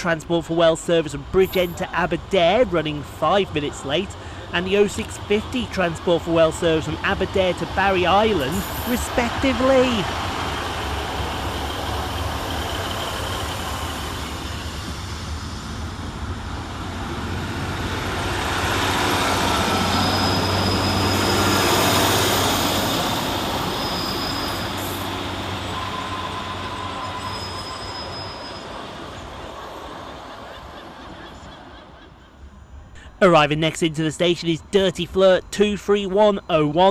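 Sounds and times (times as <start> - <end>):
diesel train engines: 0.0 - 36.9
train wheels rumbling on rails: 3.8 - 32.1
high-pitched wheel squeals: 8.4 - 9.4, 19.4 - 30.1.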